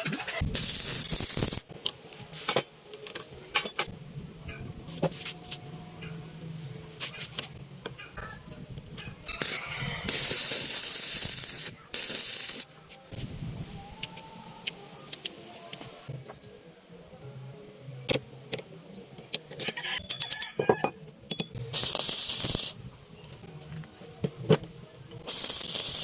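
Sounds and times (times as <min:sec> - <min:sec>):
bursts of hissing: 0:09.3 - 0:13.8, 0:21.7 - 0:22.8, 0:25.2 - 0:26.0.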